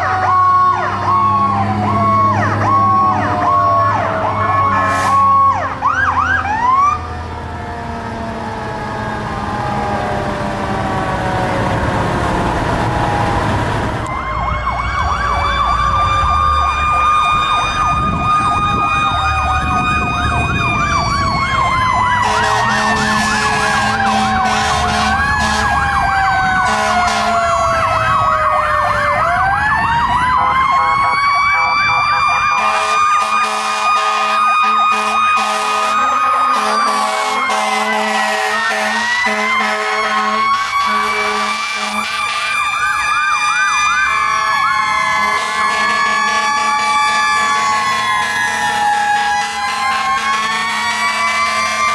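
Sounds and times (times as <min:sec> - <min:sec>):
electronic sirens wailing and yelping: 0:00.0 - 0:51.9
mechanical siren wailing: 0:00.0 - 0:51.9
truck engines rumbling: 0:00.0 - 0:51.9
air horns blowing: 0:04.6 - 0:05.4, 0:22.1 - 0:28.1, 0:30.7 - 0:42.7, 0:45.1 - 0:51.9.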